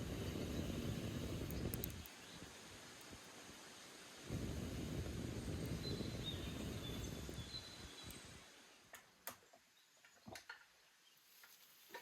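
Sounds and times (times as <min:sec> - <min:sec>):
wind rumbling on microphone: 0:00.0 - 0:03.6, 0:04.2 - 0:08.5
faint clicks: 0:01.4 - 0:03.4.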